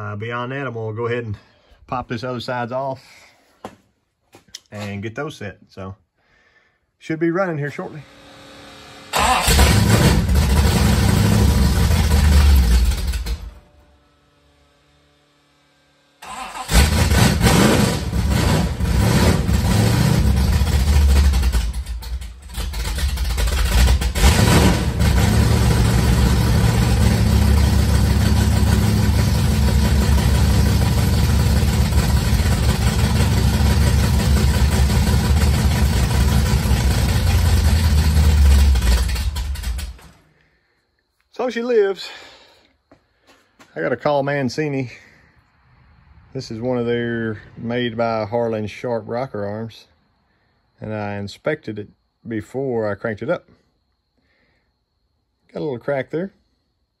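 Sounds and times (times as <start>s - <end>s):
engine starting and running: 7.6s - 40.6s.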